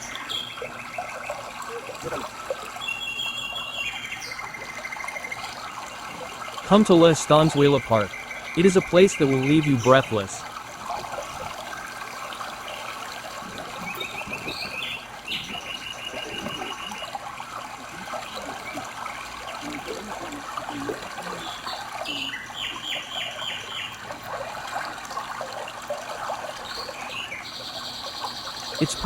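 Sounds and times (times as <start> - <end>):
bird chirping quickly: 0.0 - 1.9, 2.8 - 10.4, 13.8 - 17.1, 21.2 - 24.0, 26.6 - 29.0
stream trickling over rocks: 0.0 - 29.0.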